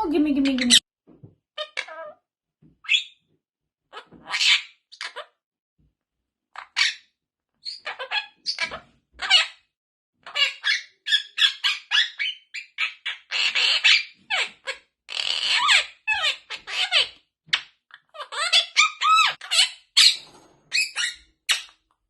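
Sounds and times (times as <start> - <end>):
parrot chirping and squawking: 0.4 - 0.8, 1.6 - 2.2, 2.8 - 3.2, 3.9 - 5.4, 6.6 - 7.0, 7.6 - 9.6, 10.2 - 21.8.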